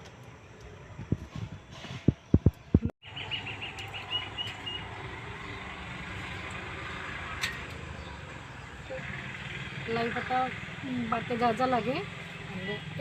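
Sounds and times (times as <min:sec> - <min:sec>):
outdoor background noise: 0:00.0 - 0:13.0
bird chirping: 0:02.7 - 0:06.7.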